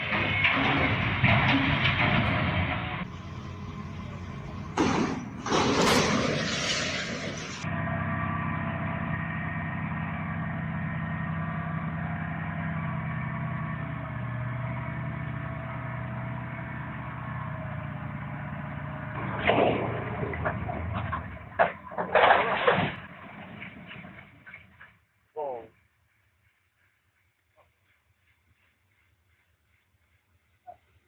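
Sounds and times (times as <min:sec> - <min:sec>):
loud bursts of noise: 0:00.0 - 0:07.7
vehicle engine running: 0:00.0 - 0:22.2.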